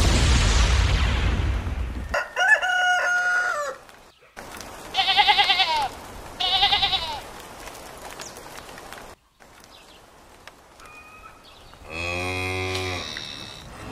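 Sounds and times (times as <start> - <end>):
rooster crowing: 2.1 - 3.9
sheep bleating: 4.9 - 7.2.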